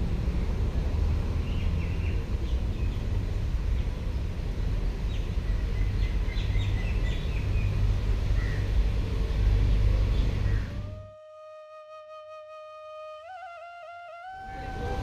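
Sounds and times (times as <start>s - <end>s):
birds chirping: 5.1s - 11.2s.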